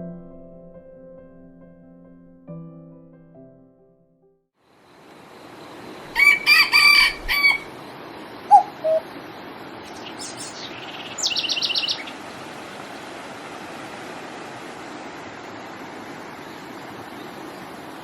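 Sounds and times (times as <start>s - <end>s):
steady outdoor hiss: 4.6s - 18.0s
rooster crowing: 6.1s - 7.7s
short bird calls: 6.2s - 7.7s, 8.4s - 9.2s
small bird high trill: 6.2s - 7.7s, 8.5s - 9.1s, 9.9s - 12.1s.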